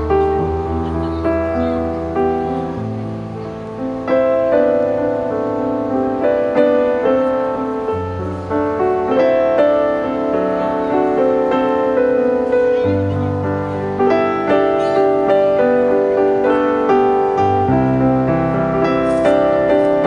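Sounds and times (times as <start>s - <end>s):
piano melody: 0.0s - 20.0s.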